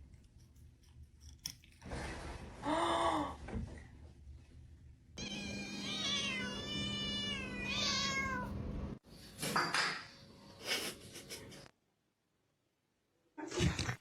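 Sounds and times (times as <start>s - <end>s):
cat meowing: 5.2s - 8.6s.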